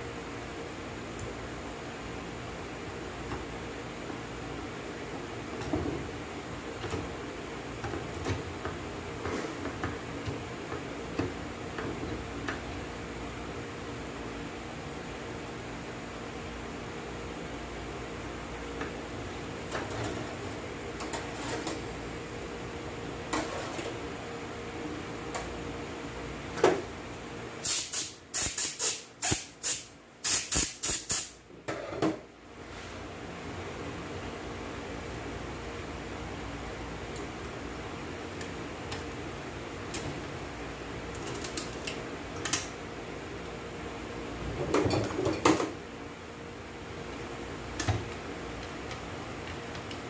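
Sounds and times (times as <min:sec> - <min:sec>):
steady background hum: 0:00.0 - 0:50.0
air blow gun hissing blasts: 0:27.6 - 0:31.4.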